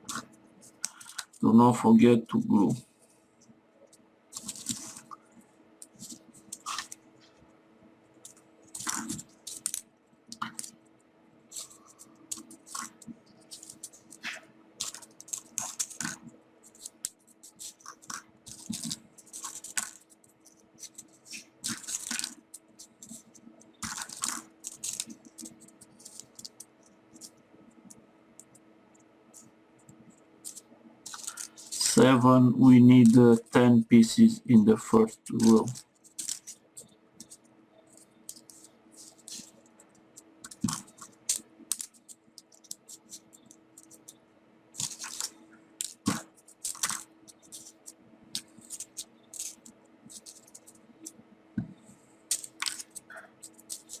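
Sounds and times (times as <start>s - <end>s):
paper rustling and clicking: 0.0s - 1.4s, 4.4s - 5.2s, 5.8s - 7.0s, 8.2s - 10.8s, 11.5s - 28.6s, 30.4s - 32.0s, 35.0s - 39.6s, 40.4s - 44.2s, 44.8s - 51.2s, 52.3s - 54.0s.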